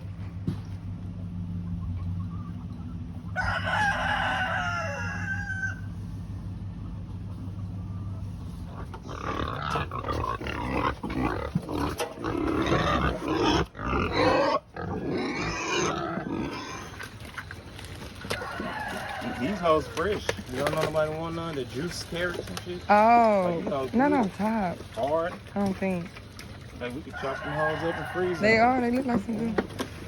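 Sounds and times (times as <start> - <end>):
rooster crowing: 3.3 - 6.0, 18.3 - 20.0, 27.1 - 28.8
pigs grunting and squealing: 8.6 - 21.2.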